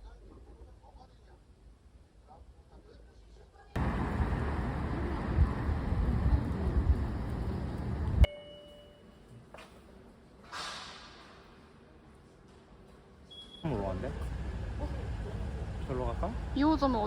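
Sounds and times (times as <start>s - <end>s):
short ding: 8.3s - 9.2s.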